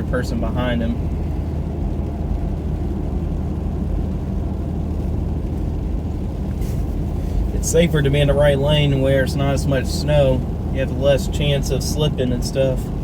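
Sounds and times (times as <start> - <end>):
car engine and tyres on snow: 0.0 - 13.0.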